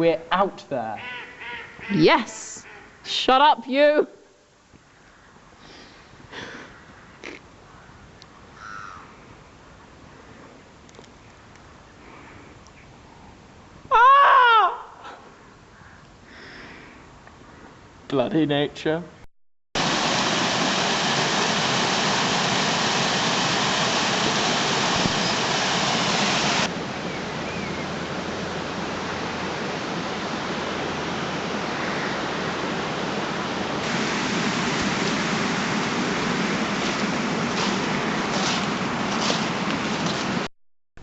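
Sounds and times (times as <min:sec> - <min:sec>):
steady rushing noise: 0:19.8 - 0:40.5.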